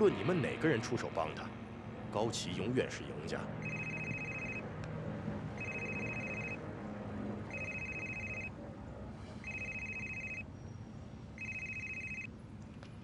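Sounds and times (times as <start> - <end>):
telephone electronic ringing: 3.6 - 4.6, 5.6 - 6.6, 7.5 - 8.5, 9.4 - 10.4, 11.4 - 12.3.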